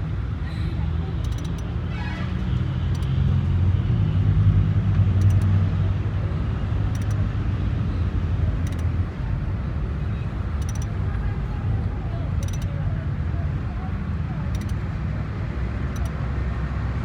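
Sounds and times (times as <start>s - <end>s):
low engine rumble: 0.0s - 17.0s
sharp click: 1.2s - 1.8s, 2.5s - 3.2s, 5.0s - 5.6s, 6.9s - 7.3s, 8.6s - 9.0s, 10.6s - 11.0s, 12.4s - 12.8s, 14.5s - 14.8s, 15.9s - 16.2s.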